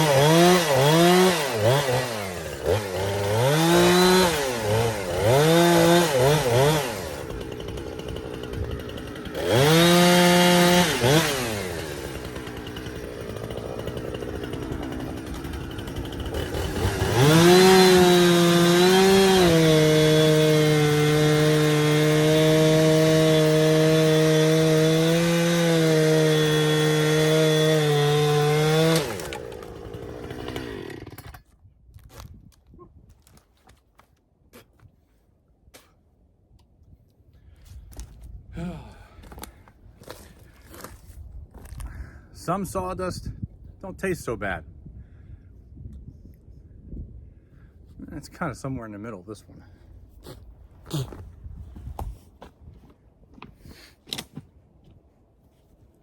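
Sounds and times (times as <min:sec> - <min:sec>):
chainsaw revving: 0:00.0 - 0:31.4.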